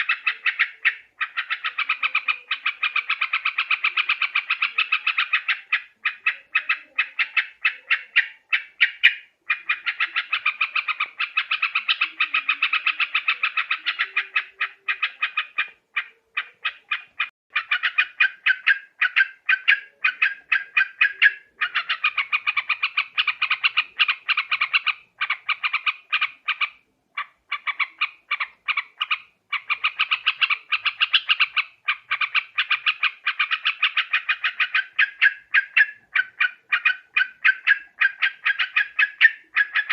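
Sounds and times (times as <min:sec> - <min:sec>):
birds chattering: 0:00.0 - 0:39.9.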